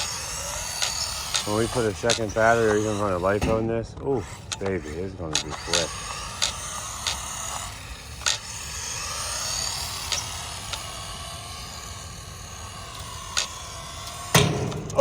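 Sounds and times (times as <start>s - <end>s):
electric motor whining: 0.0s - 15.0s
sharp clicks or knocks: 14.2s - 15.0s.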